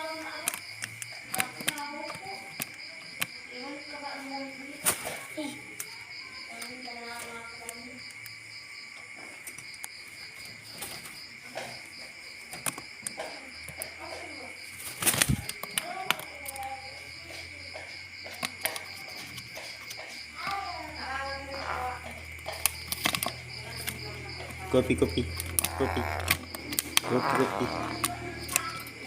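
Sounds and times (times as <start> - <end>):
insect drone: 0.0 - 29.0
flapping and rustling: 9.4 - 13.4, 14.2 - 16.6.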